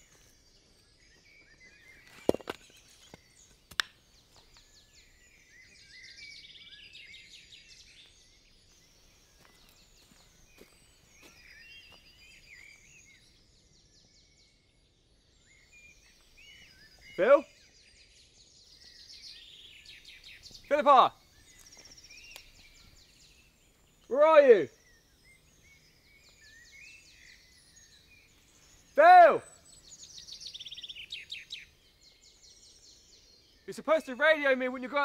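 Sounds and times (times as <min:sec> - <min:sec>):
songbirds singing and chirping: 0:00.0 - 0:35.0.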